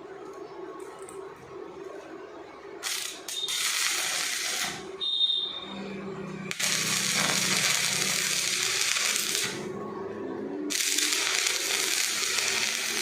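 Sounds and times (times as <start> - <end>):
arc welding crackling hiss: 2.8 - 4.9, 6.5 - 9.6, 10.7 - 13.0.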